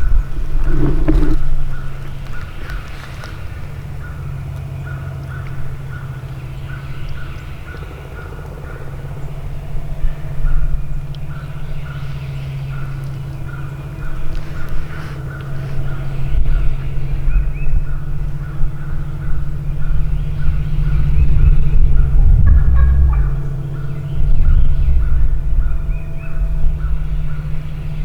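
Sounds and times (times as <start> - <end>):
steady low drone: 0.0 - 28.0
wild turkeys calling: 12.7 - 16.9, 20.2 - 27.4.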